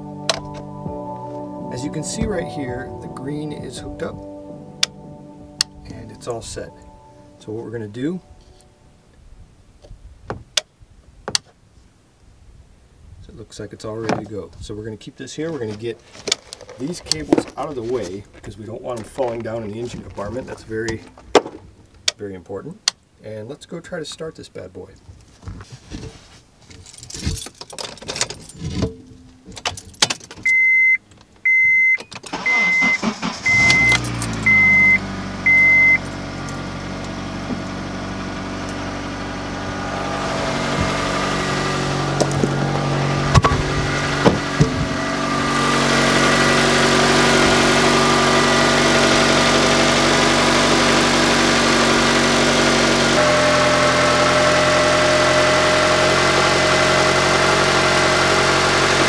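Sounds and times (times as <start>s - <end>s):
high beeps: 30.5s - 36.0s
car engine idling: 32.3s - 59.0s.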